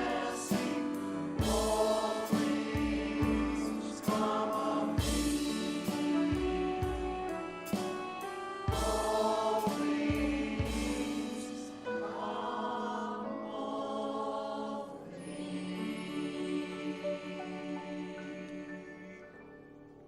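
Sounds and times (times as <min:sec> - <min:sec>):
drum strikes: 0:00.0 - 0:11.4
worship group singing: 0:00.0 - 0:19.5
praise band playing: 0:00.0 - 0:19.6.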